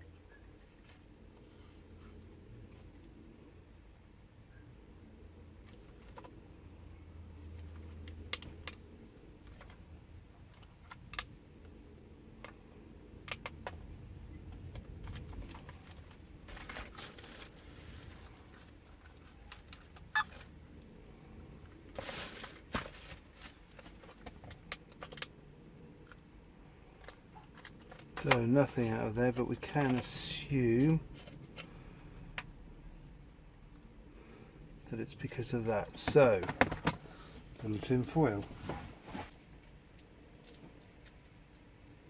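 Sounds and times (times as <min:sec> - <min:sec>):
plastic parts clicking and tapping: 0:14.5 - 0:16.8, 0:23.8 - 0:25.3.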